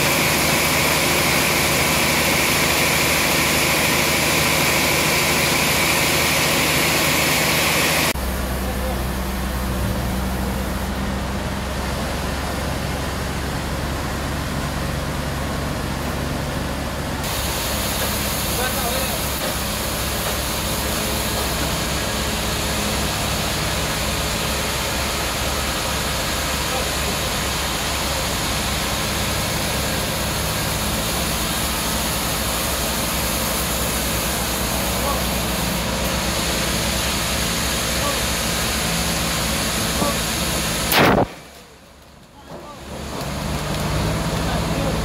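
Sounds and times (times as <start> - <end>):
engine running steadily: 0.0 - 45.0
broad hiss: 17.2 - 41.7.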